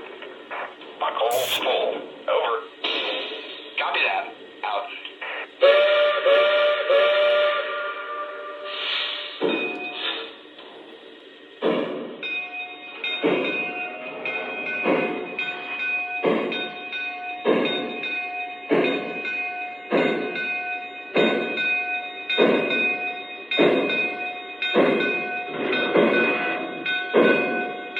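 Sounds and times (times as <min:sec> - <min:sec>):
model steam locomotive chuffs: 0:00.0 - 0:27.9
steady high tones: 0:01.3 - 0:01.6.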